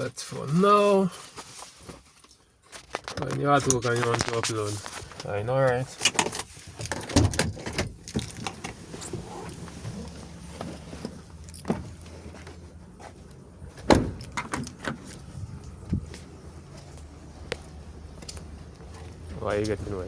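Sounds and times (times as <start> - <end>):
clicks and knocks of handling: 2.2 - 10.2
thump: 13.8 - 14.2.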